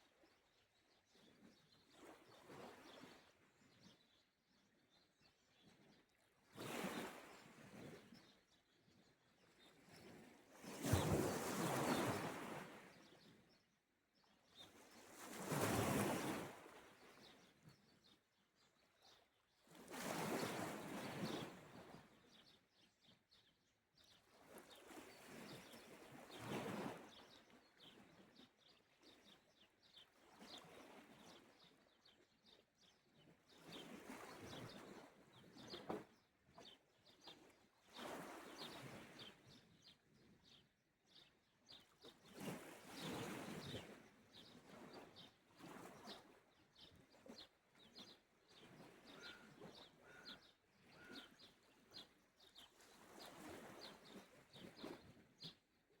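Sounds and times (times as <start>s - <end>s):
faint bird chirps: 49.1s - 51.6s.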